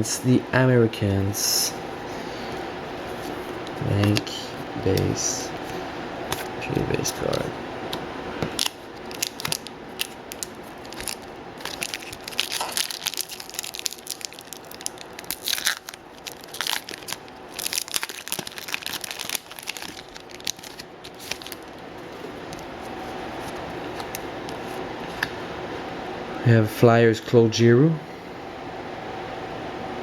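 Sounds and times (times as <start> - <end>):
foil wrapper crinkling and tearing: 8.5 - 22.7.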